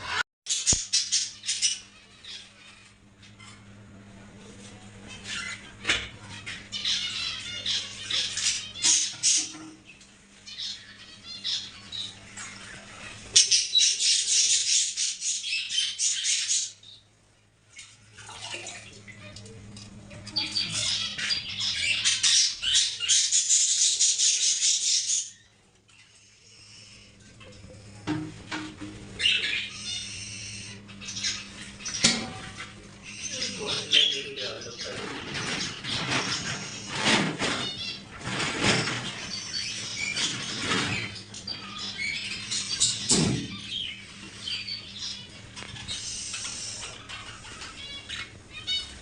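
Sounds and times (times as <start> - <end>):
parrots chattering: 0.0 - 3.8, 5.0 - 17.0, 18.6 - 28.0, 28.6 - 49.0
caged birds chirping: 0.0 - 49.0
faint high bird calls: 5.0 - 17.1, 29.2 - 38.2.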